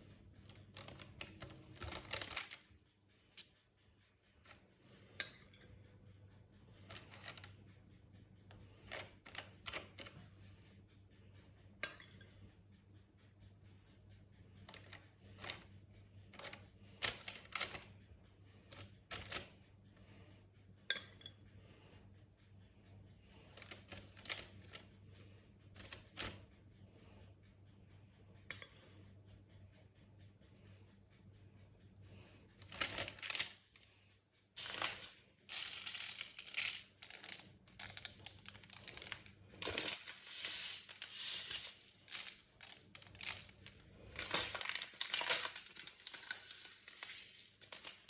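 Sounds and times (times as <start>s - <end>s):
household objects clicking and clinking: 0.4s - 2.8s, 8.5s - 10.3s, 16.3s - 17.9s, 18.7s - 19.6s, 32.6s - 33.9s, 34.6s - 48.0s.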